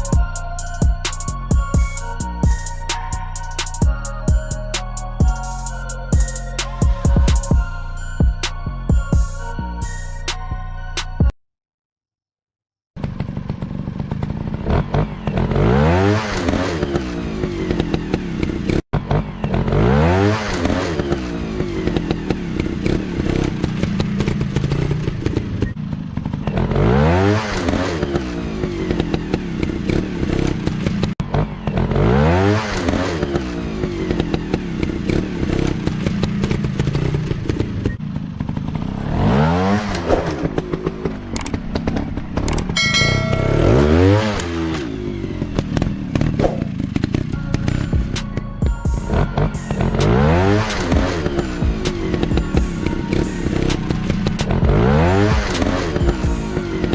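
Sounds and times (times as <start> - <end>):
dirt bike engines revving: 13.0 - 48.2, 49.0 - 56.9.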